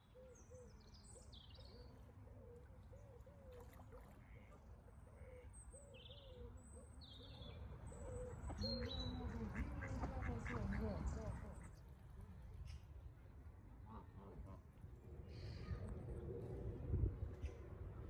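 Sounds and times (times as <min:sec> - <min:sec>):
faint low rumble: 0:12.2 - 0:18.0.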